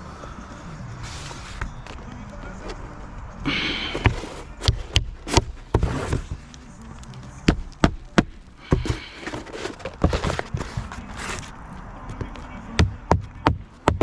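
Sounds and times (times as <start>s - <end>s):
rough scraping: 2.4s - 6.8s, 8.3s - 12.7s
sharp knocks and taps on roof: 12.2s - 14.0s.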